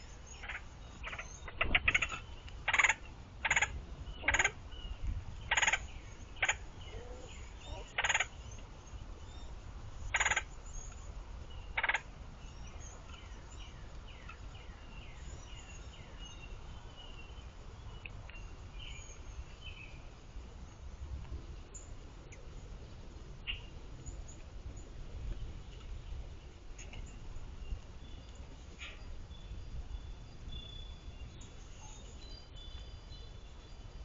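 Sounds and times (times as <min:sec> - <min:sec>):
woodpecker harsh rolling calls: 0:00.3 - 0:04.6, 0:05.4 - 0:08.4, 0:10.0 - 0:10.5, 0:11.7 - 0:12.1.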